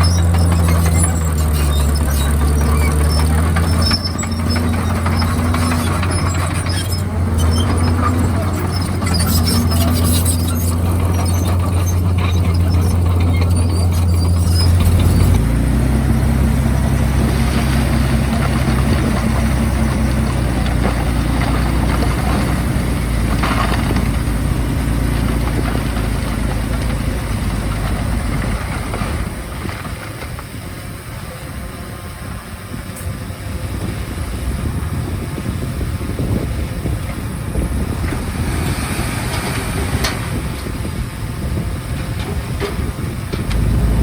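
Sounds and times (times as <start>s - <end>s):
high squeaks: 0.0s - 15.6s
bulldozer diesel engine running: 0.0s - 44.0s.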